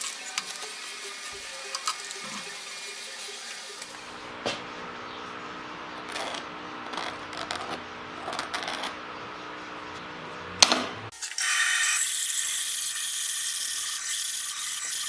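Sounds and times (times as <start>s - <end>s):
electric motor humming: 0.0s - 4.3s.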